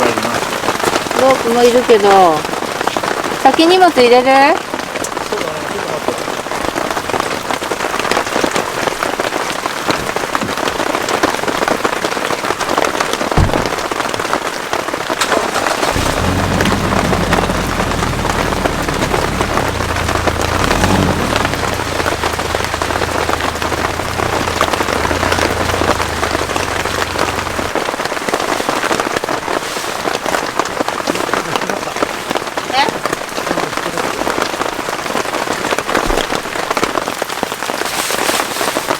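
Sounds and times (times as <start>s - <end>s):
heavy rain falling: 0.0s - 38.9s
low steady rumble: 15.9s - 27.8s.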